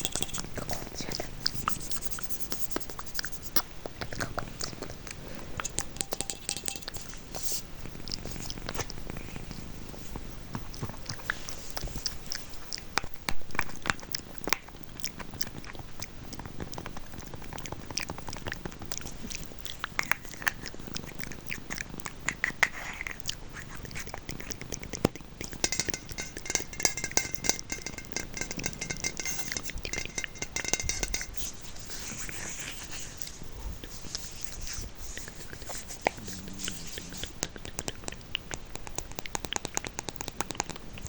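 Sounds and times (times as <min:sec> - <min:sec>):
rasping texture: 0:25.7 - 0:37.8.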